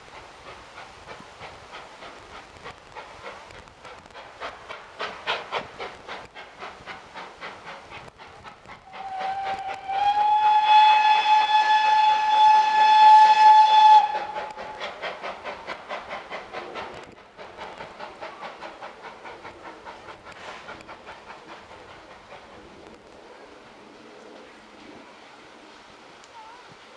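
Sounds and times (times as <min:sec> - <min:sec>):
steam locomotive chuffing: 0:00.0 - 0:26.9
steam whistle blast: 0:08.9 - 0:14.6.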